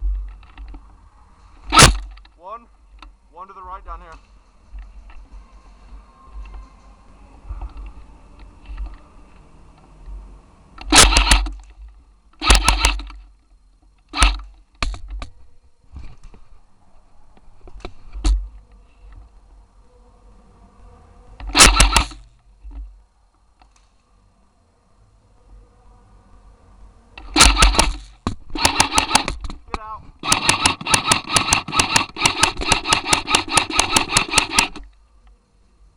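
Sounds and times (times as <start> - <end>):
airsoft rifle bursts: 1.6 - 2.2, 10.8 - 11.7, 12.4 - 13.2, 14.1 - 14.5, 21.5 - 22.2, 27.2 - 29.4, 30.2 - 34.8.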